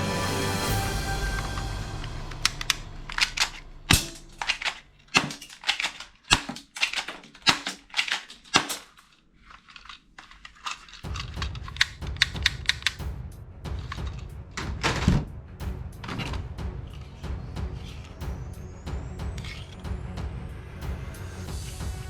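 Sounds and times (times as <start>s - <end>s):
low background music: 0.0s - 4.8s, 11.1s - 22.0s
toy pistol plastic clicks: 4.4s - 11.9s.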